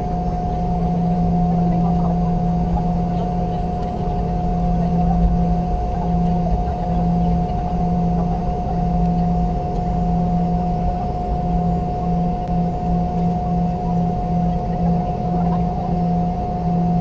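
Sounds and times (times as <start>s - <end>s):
aircraft cabin rumble: 0.0s - 17.0s
high engine whine: 0.0s - 17.0s.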